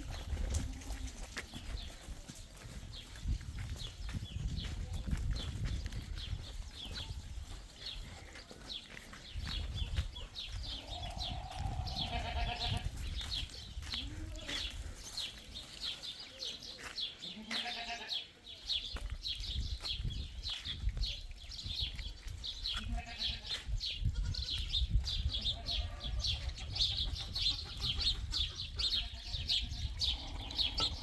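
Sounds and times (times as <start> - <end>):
goats bleating: 10.7 - 12.9, 17.3 - 18.2, 22.8 - 23.6.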